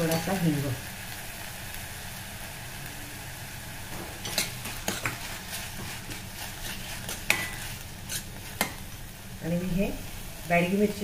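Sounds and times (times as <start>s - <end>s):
masala sizzling in oil: 0.0s - 11.0s
metal spoon scraping a pan: 4.2s - 8.8s.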